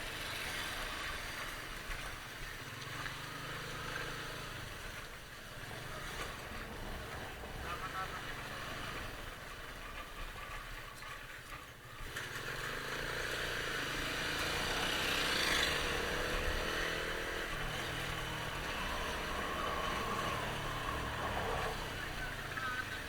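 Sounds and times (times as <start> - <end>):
motorcycle engine running: 0.0 - 23.0
road noise: 0.0 - 23.0.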